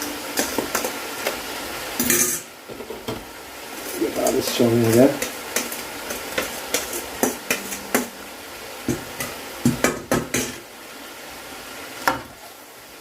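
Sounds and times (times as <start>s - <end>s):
steady sizzle: 0.0s - 13.0s
utensil clacking against pan: 4.2s - 8.1s, 8.9s - 10.6s.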